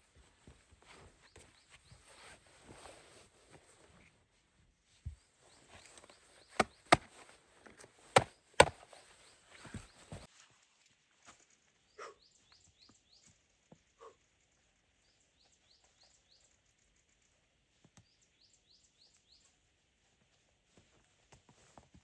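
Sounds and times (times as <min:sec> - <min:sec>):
soft knocks: 0:08.2 - 0:08.7
faint bird chirping: 0:11.8 - 0:17.4.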